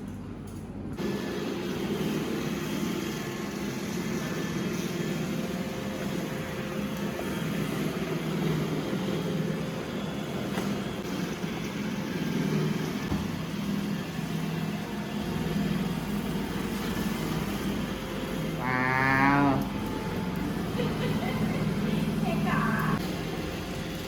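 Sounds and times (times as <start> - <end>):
robot vacuum motor hum: 15.4 - 23.0.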